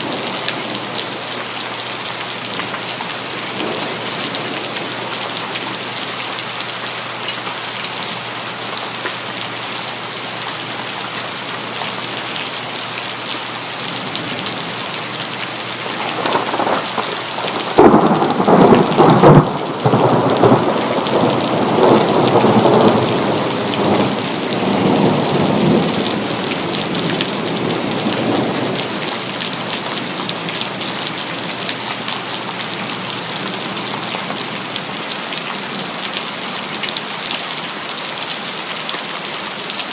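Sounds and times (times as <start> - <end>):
heavy rain hissing: 0.0 - 36.0
thunderclap rolling: 15.8 - 24.2.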